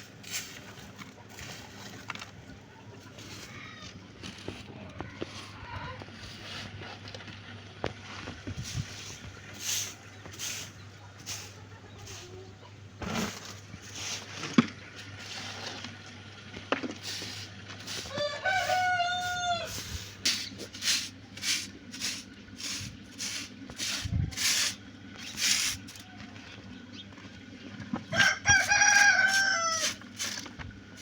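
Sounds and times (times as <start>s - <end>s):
rooster crowing: 18.0s - 19.8s, 28.1s - 30.0s.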